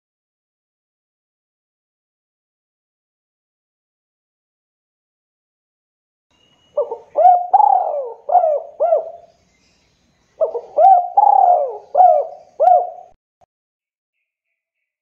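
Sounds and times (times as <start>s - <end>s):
dove cooing: 6.8s - 9.3s, 10.4s - 13.2s.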